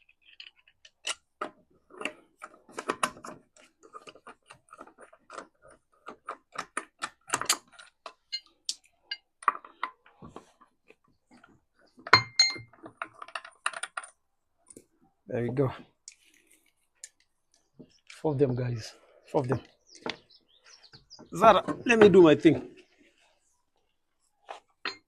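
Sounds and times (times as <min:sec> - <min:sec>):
metallic ringing clink: 0:12.2 - 0:12.7.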